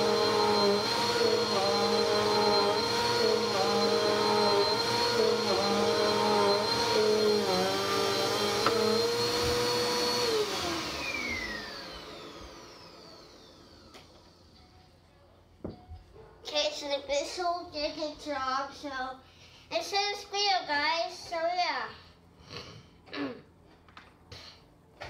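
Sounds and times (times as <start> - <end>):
vacuum motor winding down: 0.0 - 14.5
vacuum cleaner whining: 0.0 - 14.8.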